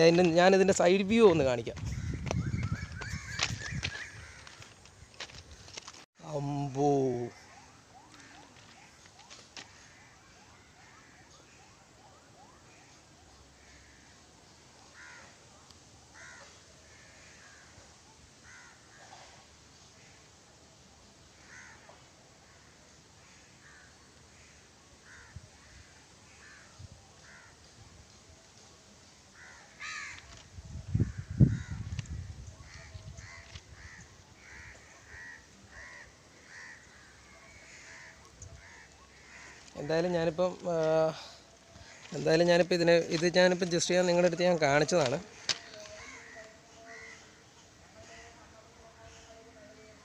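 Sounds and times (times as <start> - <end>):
crows cawing: 1.8 - 6.0, 7.2 - 9.0, 9.6 - 11.6, 13.6 - 15.5, 16.1 - 17.8, 18.4 - 19.4, 21.4 - 27.6, 29.3 - 30.4, 31.0 - 43.4, 44.1 - 49.5.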